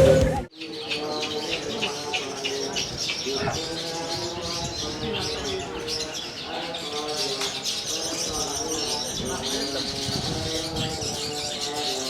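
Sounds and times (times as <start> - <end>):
lower bird calls: 0.0 - 6.6
birds chirping rapidly: 0.0 - 12.0.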